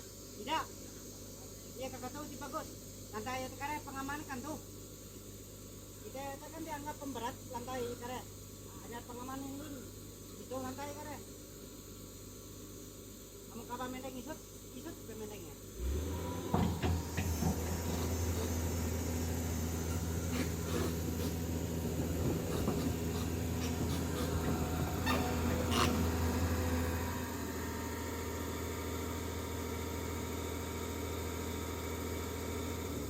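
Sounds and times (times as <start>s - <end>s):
heavy machine engine running: 15.8s - 33.0s
knocks and clanks: 16.5s - 18.7s, 19.9s - 26.5s.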